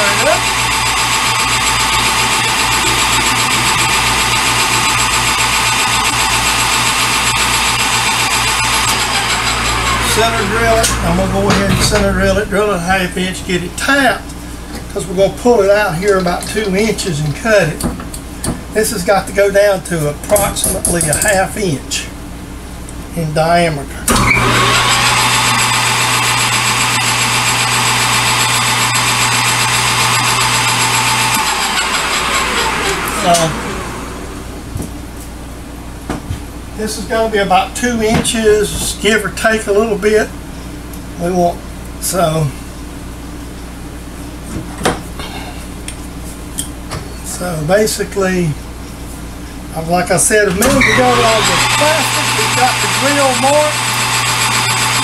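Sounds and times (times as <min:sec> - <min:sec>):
metal lathe humming: 0:00.0 - 0:13.8, 0:24.1 - 0:34.7, 0:50.5 - 0:55.0.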